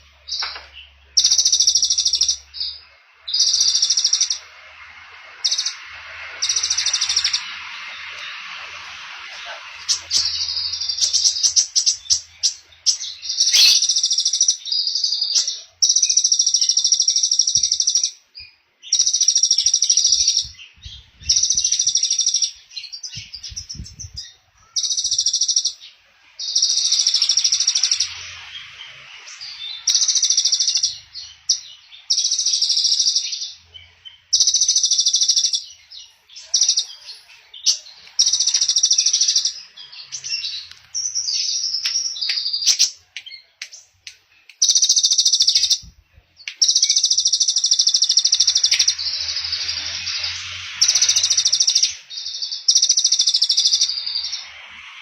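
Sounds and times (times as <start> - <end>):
songbird singing a high trill: 9.4 - 43.6, 44.6 - 45.9, 46.6 - 55.0.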